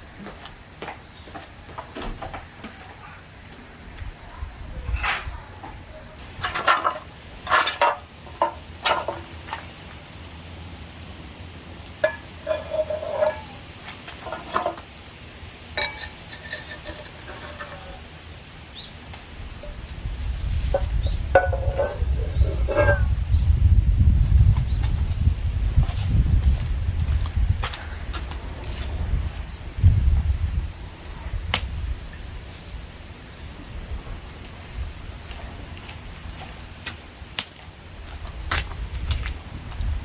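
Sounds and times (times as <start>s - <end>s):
crickets trilling: 0.0s - 40.0s
dishes and utensils clinking: 15.8s - 18.0s.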